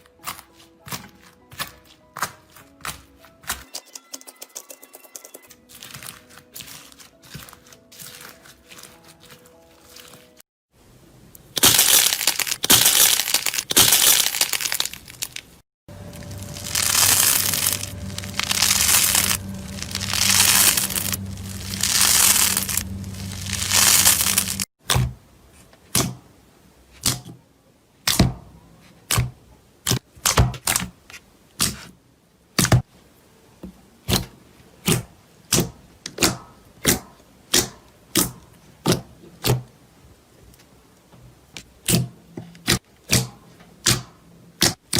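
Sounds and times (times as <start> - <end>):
slime crackling and squishing: 5.7 - 10.4, 11.6 - 24.7
low steady hum: 15.9 - 24.7.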